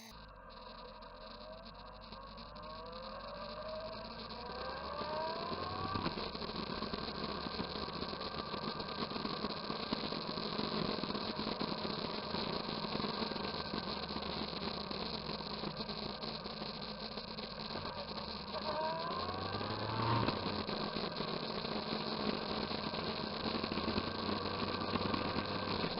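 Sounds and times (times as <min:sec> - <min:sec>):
motorcycle engine running: 0:17.7 - 0:25.9.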